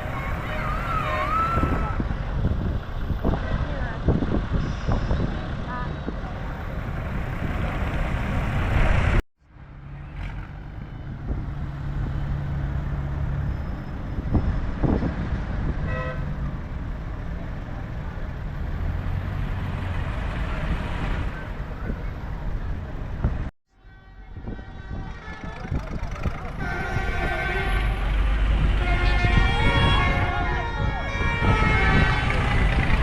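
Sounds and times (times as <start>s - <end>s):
tractor engines passing: 0.0s - 33.0s
horn toot: 26.4s - 32.9s.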